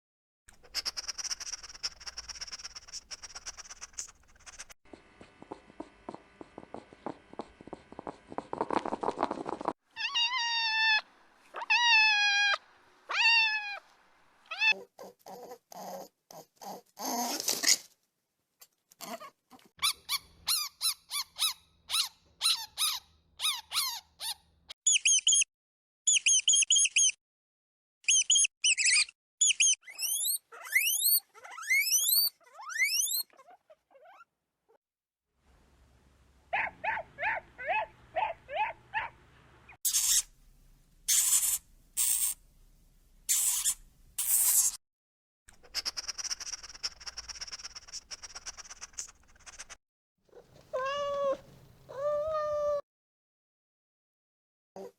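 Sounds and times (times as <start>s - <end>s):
rapid high chirps: 0.6s - 4.8s, 39.8s - 40.3s, 41.1s - 42.4s, 45.7s - 49.8s
kitten-like mews: 50.4s - 52.8s.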